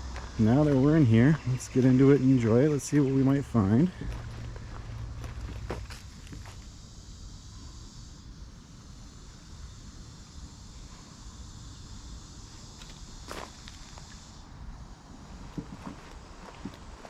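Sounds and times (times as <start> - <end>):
distant city traffic: 0.0 - 17.0
insects hissing: 0.0 - 17.0
footsteps on a trail: 0.1 - 6.6, 12.8 - 14.1, 15.4 - 17.0.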